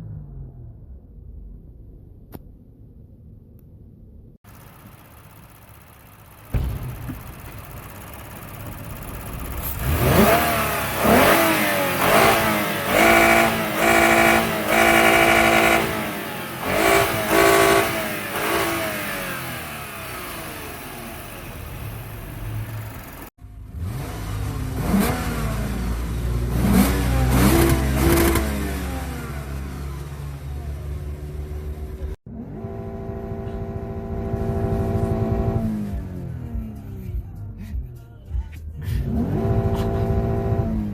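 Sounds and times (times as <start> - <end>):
deep exhaust rumble: 0.0 - 15.5, 19.8 - 32.2
car engine revving: 4.5 - 37.1, 38.8 - 40.9.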